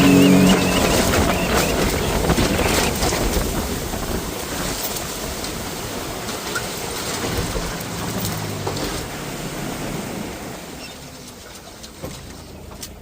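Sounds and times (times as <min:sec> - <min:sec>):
wind noise: 0:00.0 - 0:10.8
boat motor running: 0:00.0 - 0:13.0
rushing water: 0:00.0 - 0:13.0.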